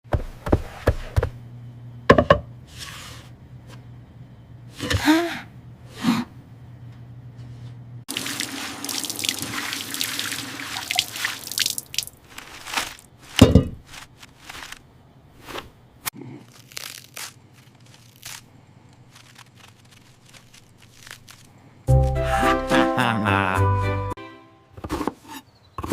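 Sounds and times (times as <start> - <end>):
water running: 8.1 - 13.0
crisp clicks and crunches: 11.9 - 13.1, 13.9 - 14.8, 16.2 - 21.6.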